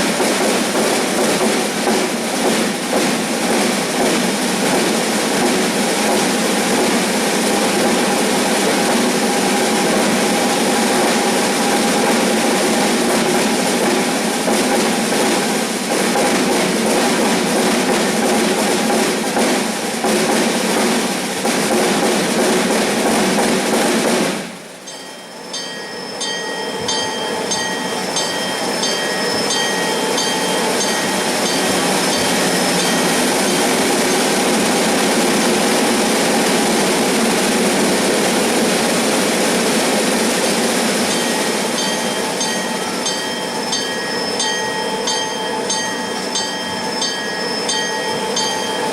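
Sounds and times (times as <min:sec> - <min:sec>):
drums rushing and clattering: 0:00.0 - 0:24.6, 0:29.5 - 0:42.6.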